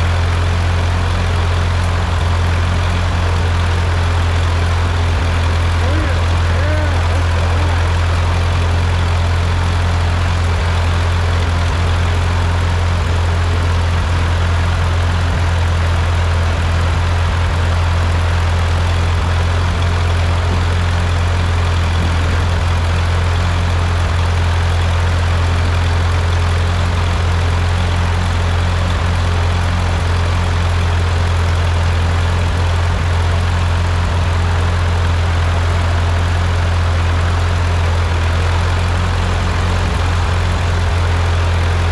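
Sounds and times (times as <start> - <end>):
tractor engine idling: 0.0 - 41.9.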